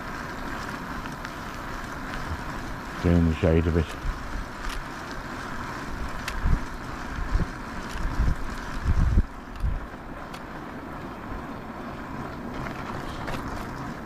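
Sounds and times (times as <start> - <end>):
steady background hiss: 0.0 - 14.0
wind buffeting microphone: 5.8 - 10.5.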